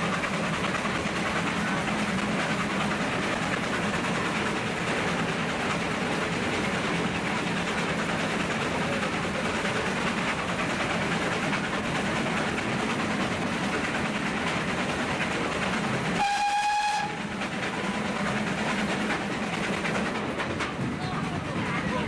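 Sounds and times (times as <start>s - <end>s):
train wheels rumbling: 0.0s - 22.0s
steam train whistle: 16.2s - 17.3s.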